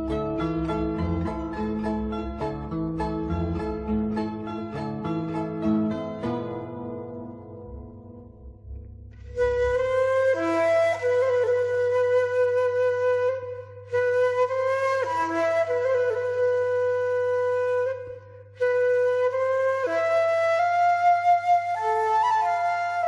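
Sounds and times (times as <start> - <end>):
flute playing slow melody: 9.2 - 23.0.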